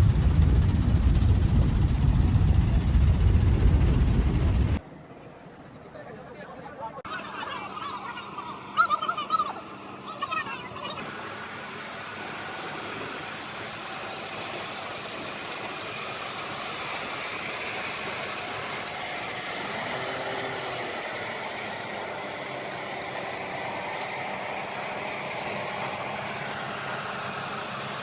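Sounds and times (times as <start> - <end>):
tractor engine running: 0.0 - 4.8.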